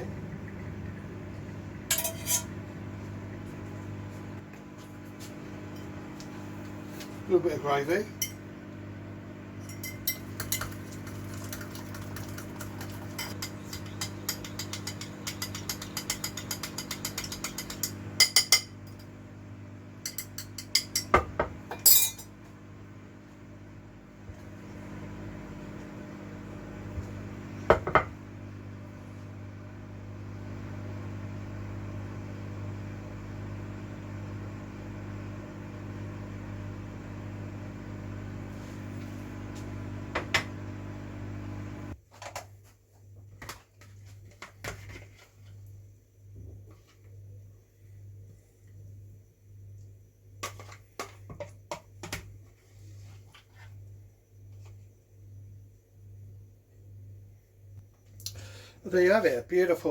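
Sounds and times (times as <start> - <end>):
steady low hum: 0.0 - 13.8
kitchen knocks and clinks: 1.9 - 2.6, 9.6 - 10.9, 12.6 - 19.0, 20.0 - 22.3, 27.7 - 28.2
fast run of small clicks: 10.4 - 13.0.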